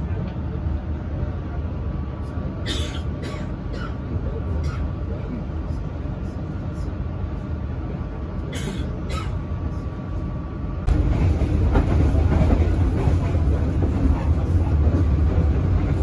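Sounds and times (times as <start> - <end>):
train wheels rumbling: 10.2 - 16.0
clickety-clack of rails: 10.8 - 16.0.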